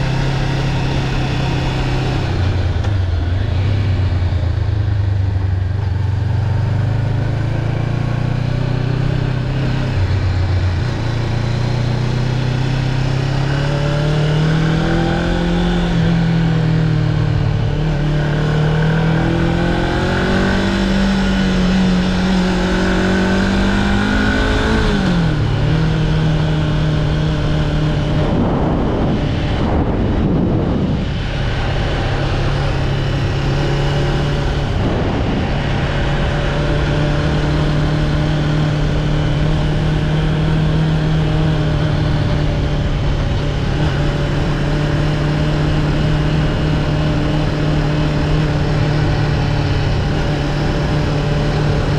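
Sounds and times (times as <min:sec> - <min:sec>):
motorcycle engine running: 0:00.0 - 0:51.9
passing vehicle: 0:00.0 - 0:51.9.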